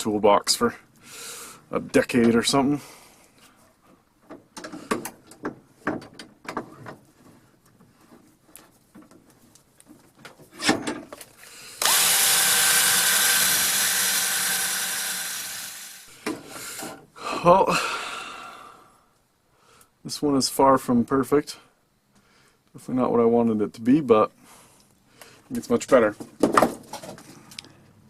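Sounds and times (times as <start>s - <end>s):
electric drill spinning: 11.8s - 16.2s.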